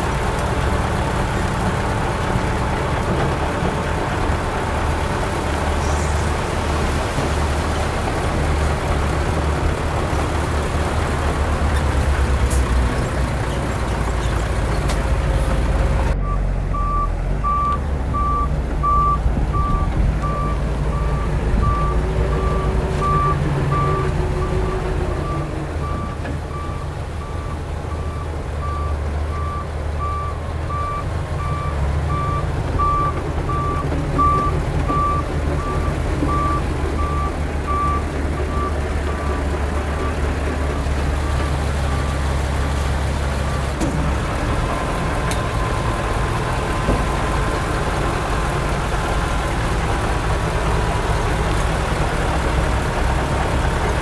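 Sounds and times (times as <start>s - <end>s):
diesel engine rumbling: 0.0s - 54.0s
reversing alarm beeping: 25.2s - 42.1s.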